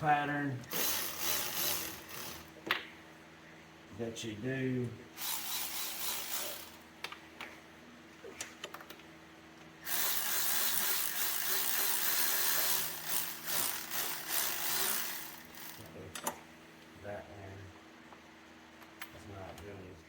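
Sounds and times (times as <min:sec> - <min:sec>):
powered ratchet running: 0:00.7 - 0:02.5, 0:05.2 - 0:06.8, 0:09.8 - 0:15.9.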